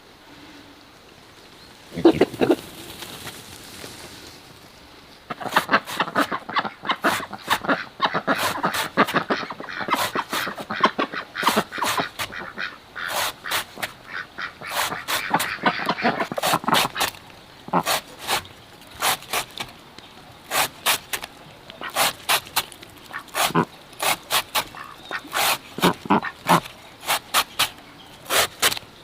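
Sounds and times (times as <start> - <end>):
ducks quacking: 1.9 - 2.7, 5.3 - 17.1, 23.1 - 27.5.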